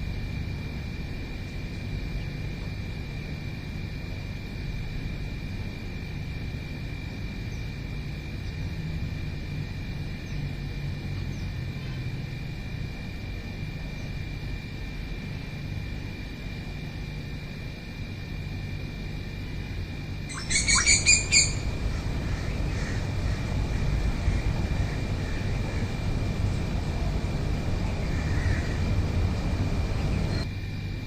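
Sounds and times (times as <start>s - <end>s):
steady low rumble: 0.0s - 31.0s
faint bird chirps: 20.3s - 21.7s.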